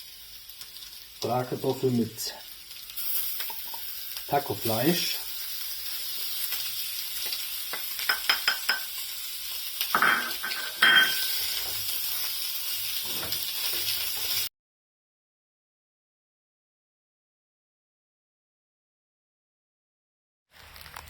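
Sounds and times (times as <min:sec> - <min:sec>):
food sizzling in a frying pan: 0:00.0 - 0:14.5, 0:20.5 - 0:21.0.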